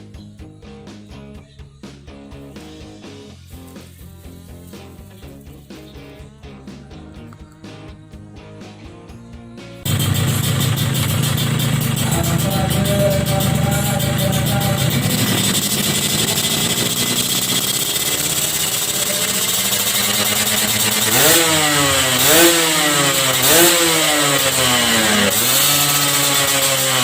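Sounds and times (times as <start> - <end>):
two-stroke motorcycle engine revving: 9.8 - 27.0.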